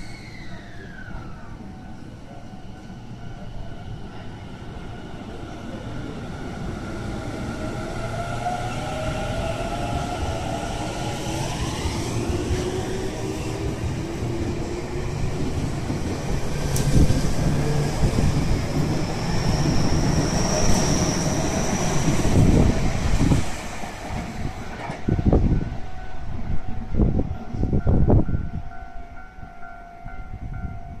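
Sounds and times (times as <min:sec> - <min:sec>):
train wheels clattering on rails: 0:09.4 - 0:25.7.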